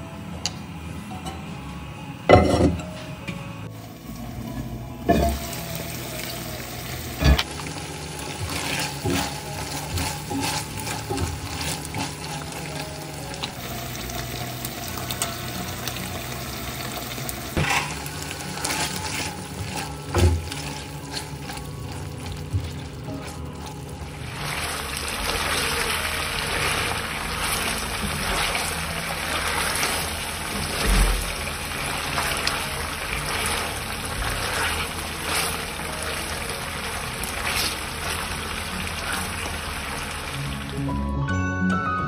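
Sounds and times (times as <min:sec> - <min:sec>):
spoon scraping and knocking pan: 0:02.3 - 0:02.9, 0:05.1 - 0:05.5, 0:08.3 - 0:12.9, 0:17.6 - 0:23.8
meat sizzling in sauce: 0:05.1 - 0:40.8.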